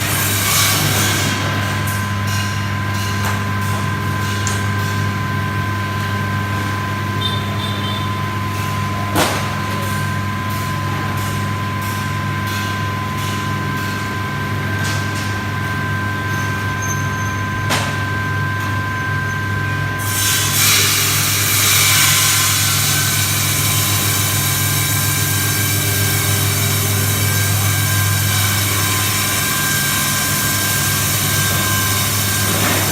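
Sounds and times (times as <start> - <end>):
ice-cutting machine motor whine: 19.8 - 32.9.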